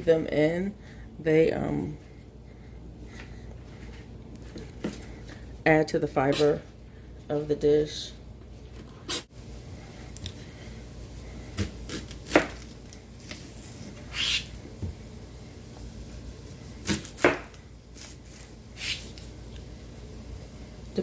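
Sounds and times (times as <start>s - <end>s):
knife chopping on cutting board: 11.6s - 12.6s, 16.8s - 17.6s.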